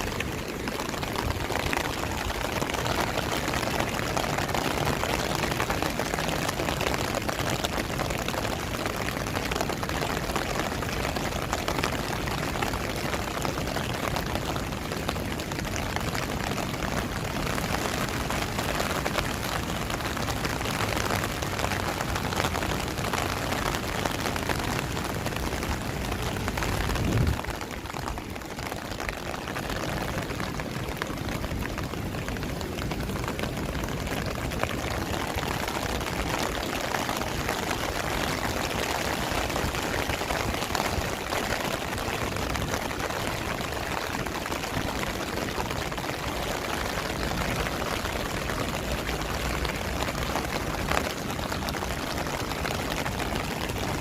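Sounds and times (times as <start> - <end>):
rain splashing on hard surfaces: 0.0 - 54.0.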